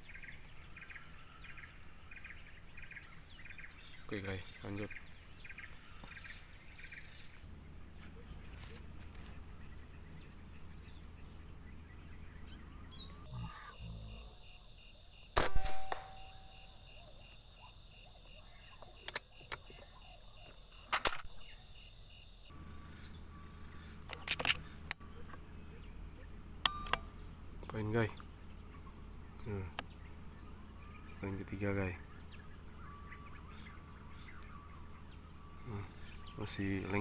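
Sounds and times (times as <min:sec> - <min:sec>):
air rifle shot: 0:15.4 - 0:16.2
sharp clicks: 0:24.1 - 0:25.4.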